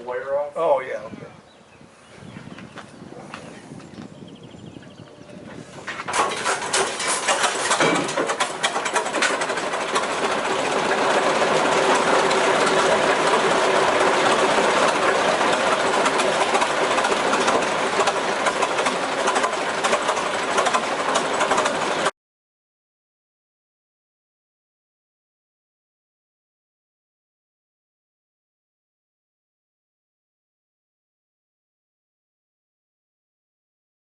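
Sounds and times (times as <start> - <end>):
machinery clattering: 5.5 - 22.1.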